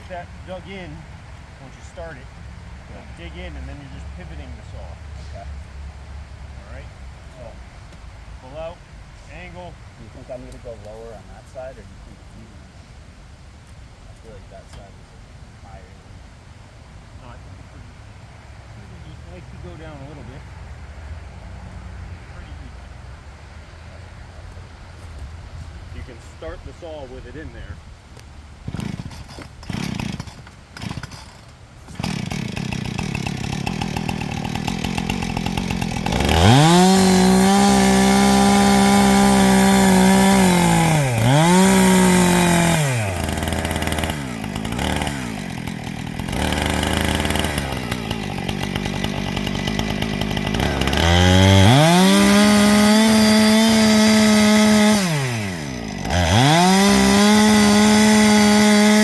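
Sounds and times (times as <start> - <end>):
chainsaw cutting wood at full throttle: 0.0 - 1.0, 1.6 - 2.2, 3.2 - 4.8, 28.6 - 59.0
chainsaw idling: 0.0 - 5.4, 28.6 - 59.0.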